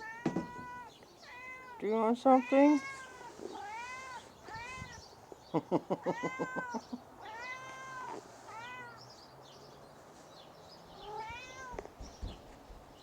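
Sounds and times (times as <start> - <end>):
cat meowing: 0.0 - 5.2, 6.0 - 9.0, 11.0 - 11.9.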